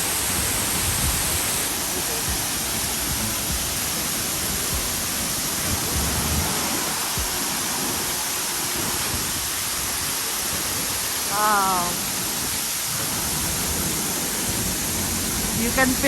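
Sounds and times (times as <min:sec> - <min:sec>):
waterfall rushing: 0:00.0 - 0:16.0
low bumps: 0:04.5 - 0:07.4.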